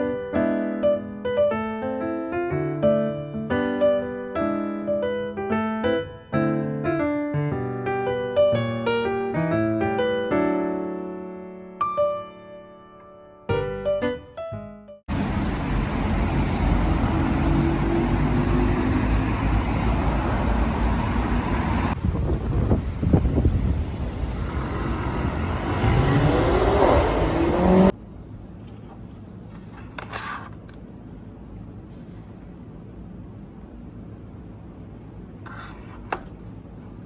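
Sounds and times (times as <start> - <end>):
cars passing on a street: 15.1 - 28.0.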